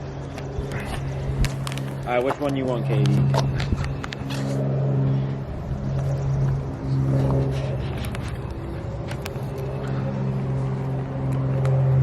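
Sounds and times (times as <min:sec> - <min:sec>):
motor hum: 0:00.0 - 0:12.0.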